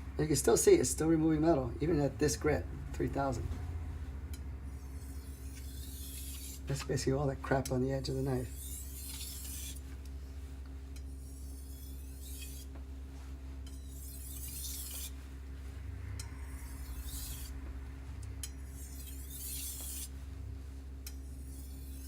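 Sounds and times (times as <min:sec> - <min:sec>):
steady low hum: 0:00.0 - 0:22.0
knife scraping on whetstone: 0:04.9 - 0:06.7, 0:08.5 - 0:09.8, 0:11.0 - 0:12.7, 0:13.7 - 0:15.2, 0:16.5 - 0:17.6, 0:18.4 - 0:20.2, 0:21.2 - 0:22.0.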